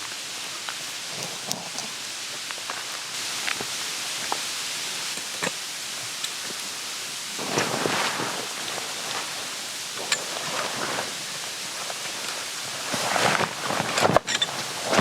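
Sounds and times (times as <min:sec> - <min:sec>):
steady outdoor hiss: 0:00.0 - 0:15.0
small ticks: 0:00.6 - 0:02.8
rustling: 0:07.1 - 0:15.0.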